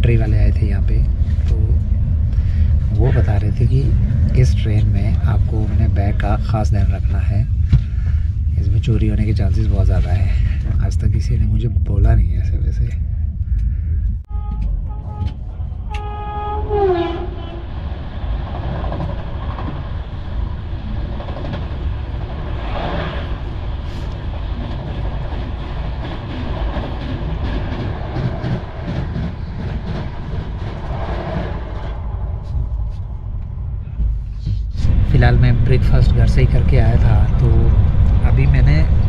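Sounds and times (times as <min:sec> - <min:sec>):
moving train rumble: 0:00.0 - 0:39.0
train horn: 0:14.3 - 0:17.7.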